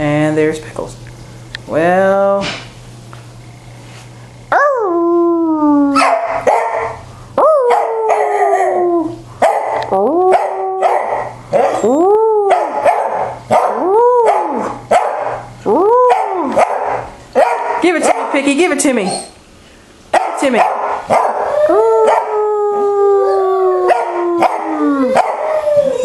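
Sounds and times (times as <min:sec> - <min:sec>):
dog howling: 0:07.4 - 0:09.2, 0:09.8 - 0:12.9, 0:13.5 - 0:14.8, 0:21.2 - 0:26.0.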